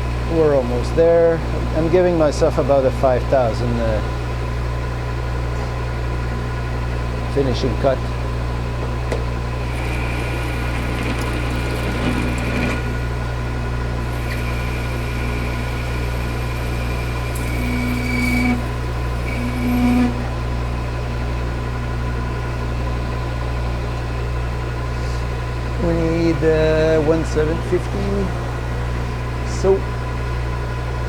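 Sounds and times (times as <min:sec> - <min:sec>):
lathe humming: 0:07.4 - 0:22.0, 0:25.5 - 0:30.2
thin cutting tone: 0:09.6 - 0:13.3, 0:14.0 - 0:20.5.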